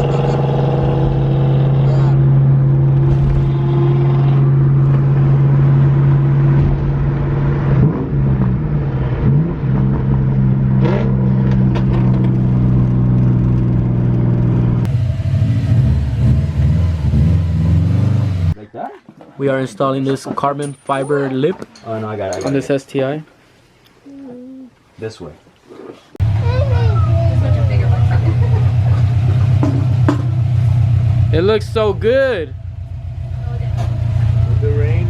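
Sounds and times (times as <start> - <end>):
car engine running: 0.0 - 18.6, 26.2 - 35.0.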